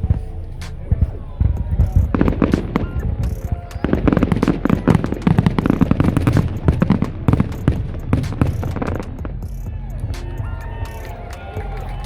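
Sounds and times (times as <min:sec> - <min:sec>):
music: 0:00.0 - 0:12.0
fireworks bangs and crackles: 0:00.8 - 0:09.4.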